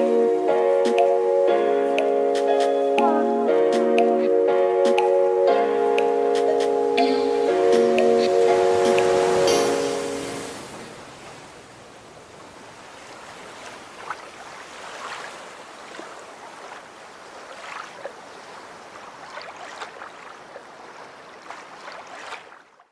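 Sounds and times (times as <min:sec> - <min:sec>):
water splashing and lapping: 0:00.0 - 0:04.3, 0:04.9 - 0:22.9
small water splashes: 0:08.8 - 0:22.9.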